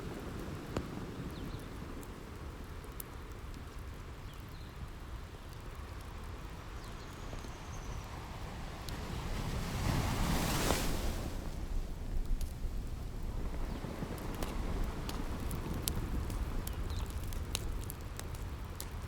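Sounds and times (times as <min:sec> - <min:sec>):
wood fire crackling: 0:00.0 - 0:19.0
ocean waves washing on shore: 0:07.5 - 0:19.0.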